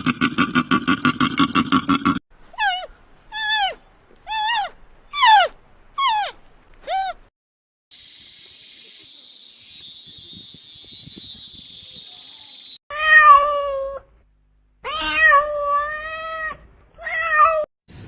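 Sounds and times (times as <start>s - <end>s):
animal calling: 2.6s - 7.2s.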